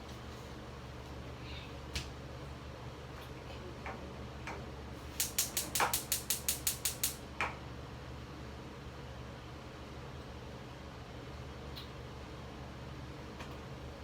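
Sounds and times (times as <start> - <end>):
gas stove igniter clicking: 5.1 - 7.2.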